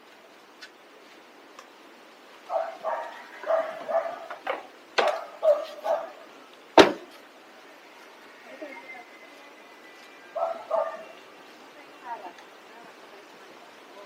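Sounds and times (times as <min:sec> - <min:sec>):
dog barking: 0:02.5 - 0:04.4, 0:05.0 - 0:06.2, 0:10.4 - 0:11.2
sharp knock: 0:06.8 - 0:07.1.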